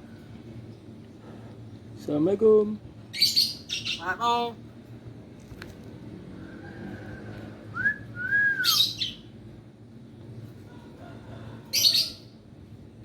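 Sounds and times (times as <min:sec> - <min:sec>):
myna whistling: 0:07.7 - 0:09.2.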